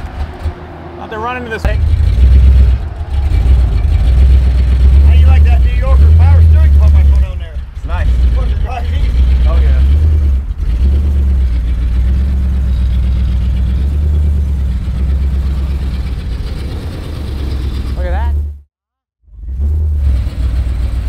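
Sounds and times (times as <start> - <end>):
car engine rumbling: 0.0 - 18.7, 19.3 - 21.0.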